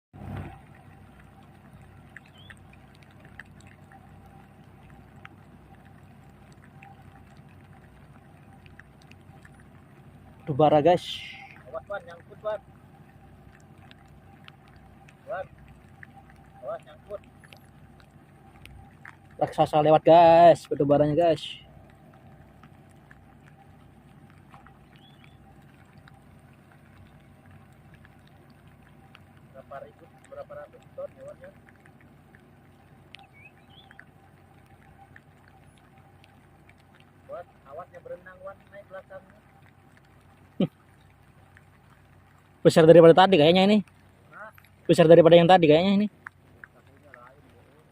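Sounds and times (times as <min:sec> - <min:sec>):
boat engine humming: 0:00.1 - 0:47.9
water noise: 0:00.1 - 0:47.9
faint clicks: 0:00.2 - 0:47.9
small ticks: 0:00.2 - 0:47.9
high chirps: 0:00.8 - 0:07.5, 0:20.6 - 0:27.9.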